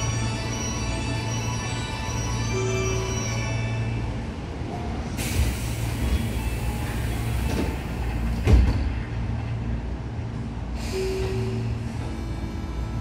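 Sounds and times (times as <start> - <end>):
train wheels rumbling on rails: 4.0 - 13.0
hiss: 5.2 - 8.3.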